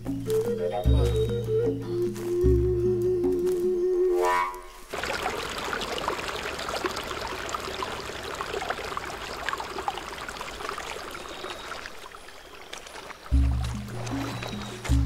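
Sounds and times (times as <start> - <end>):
stream rushing over stones: 4.9 - 15.0.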